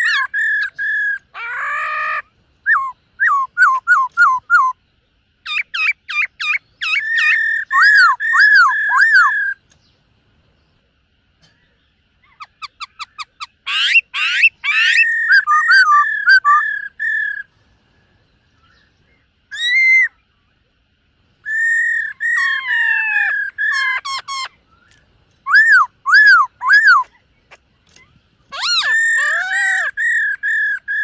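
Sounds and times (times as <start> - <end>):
laughingthrush whistling song: 0.0 - 4.8, 5.4 - 9.6, 12.3 - 17.5, 18.5 - 20.3, 21.4 - 31.0.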